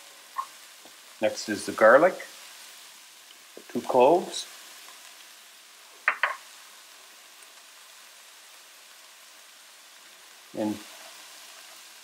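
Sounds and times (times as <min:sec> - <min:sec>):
onion and garlic sizzling in oil: 0:00.0 - 0:12.0.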